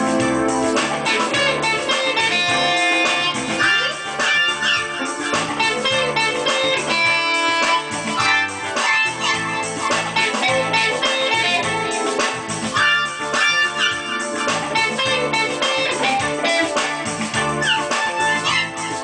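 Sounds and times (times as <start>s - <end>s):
electric guitar runs with bends: 0.0s - 19.0s
repeating bass line: 0.0s - 19.0s.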